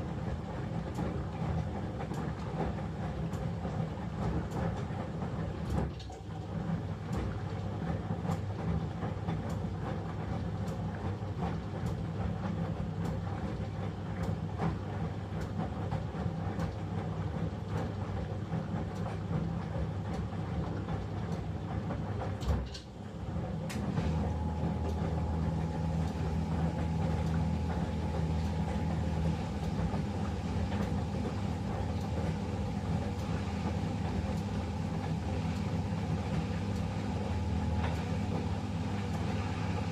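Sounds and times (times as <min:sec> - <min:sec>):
washing machine hum: 0:00.0 - 0:39.9.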